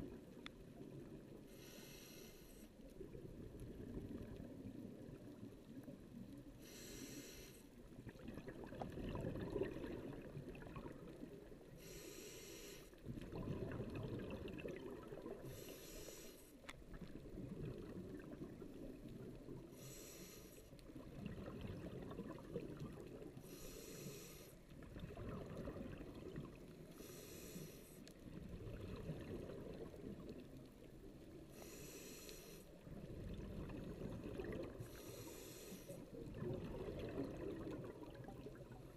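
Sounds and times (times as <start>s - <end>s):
regulator inhale hiss: 1.4s - 2.9s, 6.6s - 7.8s, 11.6s - 13.0s, 15.4s - 16.7s, 19.6s - 20.8s, 23.4s - 24.7s, 26.8s - 28.2s, 31.4s - 32.8s, 34.8s - 36.2s
exhaled air bubbling underwater: 2.9s - 38.9s.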